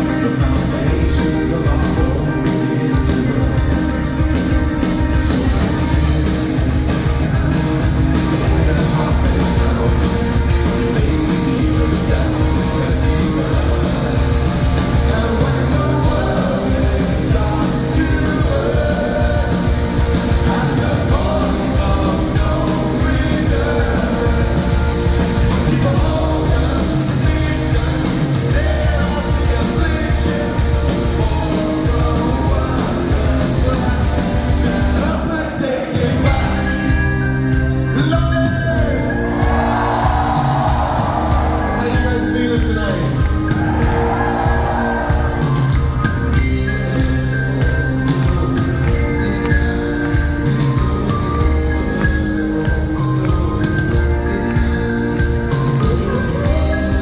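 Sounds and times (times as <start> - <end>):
person singing: 0.0 - 37.2
live rock band playing: 0.0 - 57.0.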